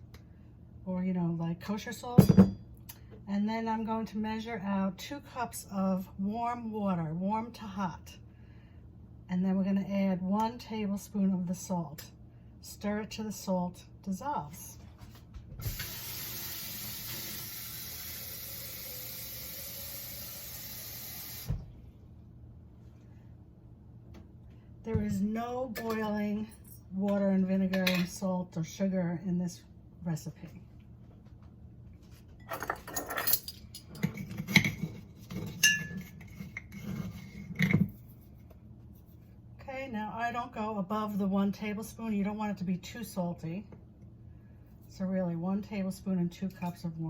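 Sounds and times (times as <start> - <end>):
water running from tap: 15.6 - 21.6
metal spoon clinking on glass: 35.6 - 36.0.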